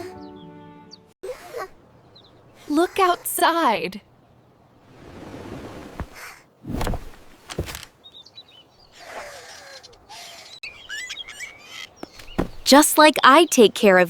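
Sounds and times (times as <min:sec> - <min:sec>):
small birds chirping: 0:01.2 - 0:14.0.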